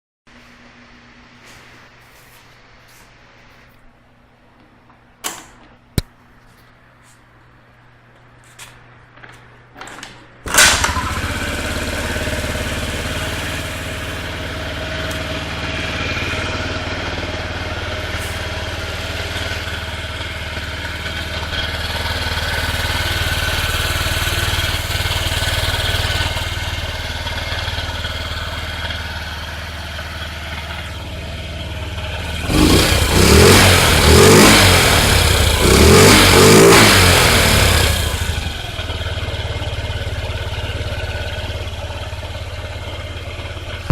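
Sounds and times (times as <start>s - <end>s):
scooter engine idling and revving: 10.5s - 43.9s.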